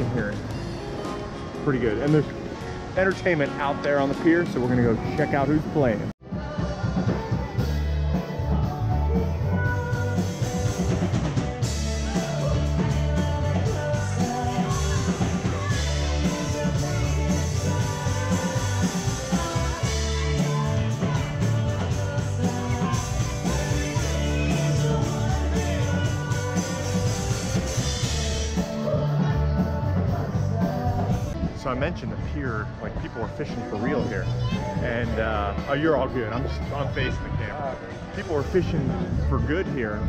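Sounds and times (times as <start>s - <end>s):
guitar: 0.0s - 40.0s
heavy bass: 6.0s - 40.0s
person singing: 6.2s - 11.0s, 11.7s - 31.5s
drum kit: 6.2s - 33.0s.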